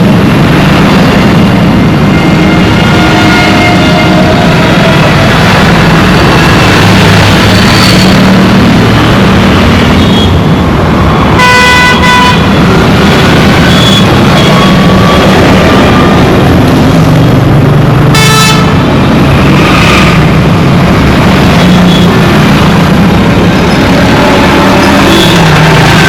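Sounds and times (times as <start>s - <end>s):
road traffic: 0.0s - 26.0s
vehicle horns honking: 2.5s - 5.1s, 11.4s - 12.6s, 18.1s - 18.9s, 24.4s - 26.0s.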